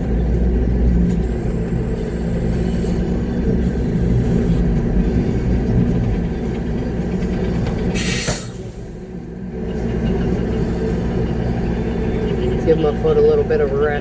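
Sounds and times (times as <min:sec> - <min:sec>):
diesel truck engine rumbling: 0:00.0 - 0:14.0
short burst of hiss: 0:08.0 - 0:08.7.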